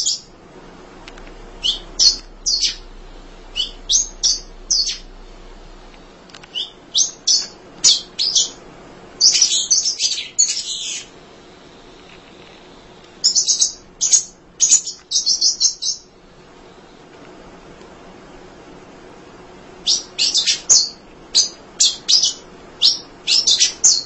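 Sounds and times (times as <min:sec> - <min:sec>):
bird chirping: 0:00.0 - 0:00.4, 0:01.3 - 0:08.6, 0:09.2 - 0:11.1, 0:13.2 - 0:16.1, 0:19.8 - 0:24.0.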